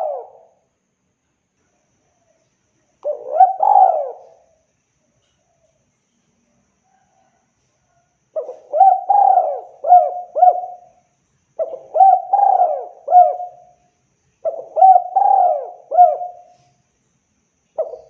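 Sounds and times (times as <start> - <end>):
dove cooing: 0.0 - 0.6, 3.0 - 4.5, 8.4 - 11.0, 11.6 - 13.8, 14.4 - 16.7, 17.8 - 18.0.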